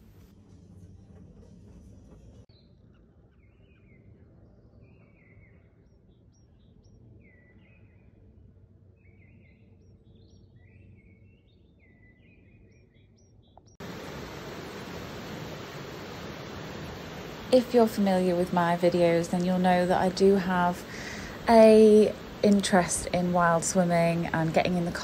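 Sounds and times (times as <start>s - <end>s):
birds chirping: 9.0s - 25.0s
low background noise: 13.8s - 25.0s
rushing river water: 13.8s - 25.0s.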